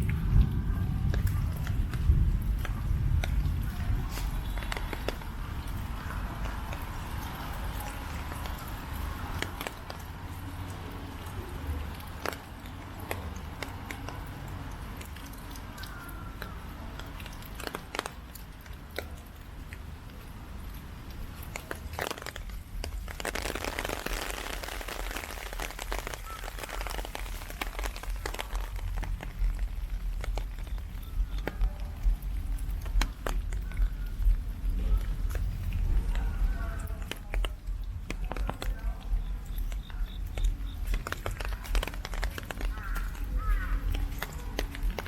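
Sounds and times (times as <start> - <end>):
heavy rain: 0.0 - 45.0
low rumble: 27.5 - 45.0.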